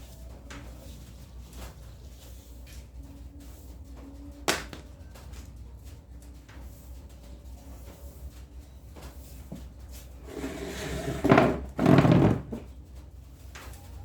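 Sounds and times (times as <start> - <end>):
loud scraping strokes: 10.2 - 12.5
drawer sliding in runners: 10.2 - 12.7.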